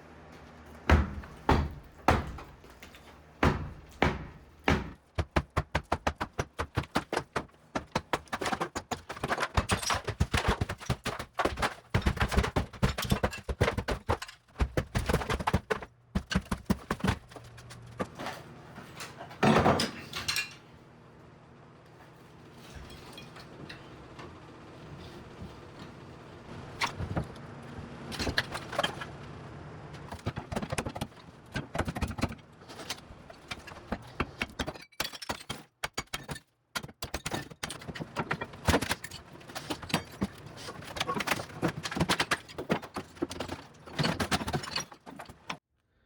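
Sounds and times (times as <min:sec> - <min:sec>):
wall demolition knocks and thuds: 0:00.8 - 0:20.4, 0:30.1 - 0:45.6.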